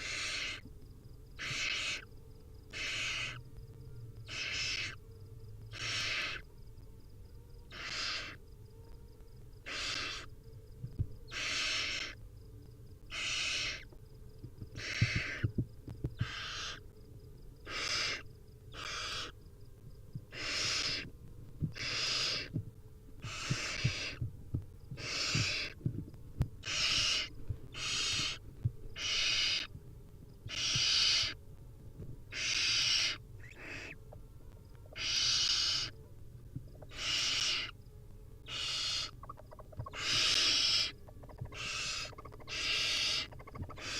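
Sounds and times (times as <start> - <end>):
owl chicks hissing: 0.0 - 0.6, 1.4 - 2.1, 2.7 - 3.4, 4.3 - 5.0, 5.7 - 6.4, 7.7 - 8.4, 9.6 - 10.3, 11.3 - 12.2, 13.1 - 13.9, 14.8 - 15.4, 16.2 - 16.8, 17.6 - 19.4, 20.3 - 21.1, 21.8 - 22.5, 23.2 - 24.2, 25.0 - 25.8, 26.6 - 28.4, 29.0 - 29.7, 30.5 - 31.4, 32.3 - 34.0, 34.9 - 36.0, 36.8 - 37.8, 38.5 - 43.9.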